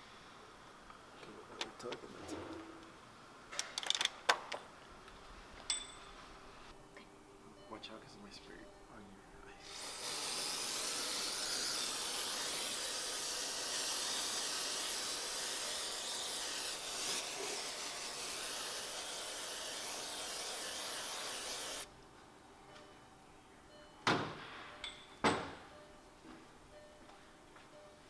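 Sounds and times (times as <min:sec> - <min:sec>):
aerosol spray can hissing: 0:09.6 - 0:21.9.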